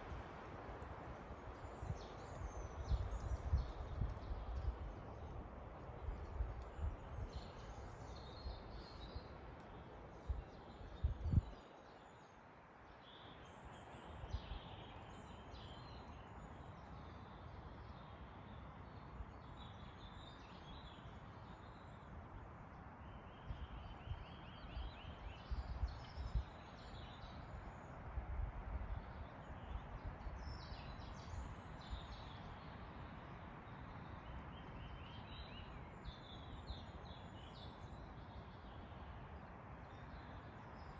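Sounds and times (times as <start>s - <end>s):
wind rumbling on microphone: 0.0s - 11.7s, 23.5s - 32.4s
wind in the trees: 0.0s - 40.9s.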